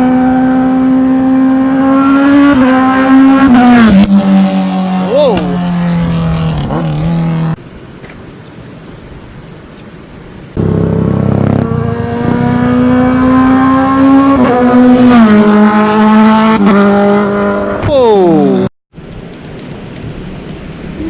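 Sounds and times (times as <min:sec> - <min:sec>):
motorcycle engine at high revs: 0:00.0 - 0:07.6, 0:10.6 - 0:17.8.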